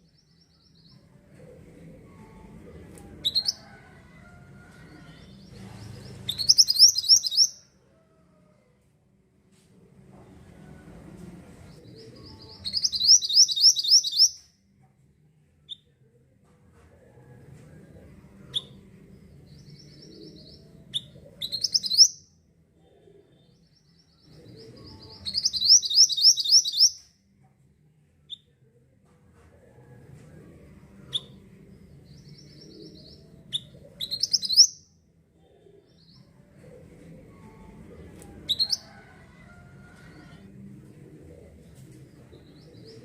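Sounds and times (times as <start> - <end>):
faint low background hum: 0.0 - 43.0
bird chirping: 5.4 - 7.6, 12.3 - 14.4, 21.4 - 22.2, 24.9 - 27.0, 33.6 - 34.9.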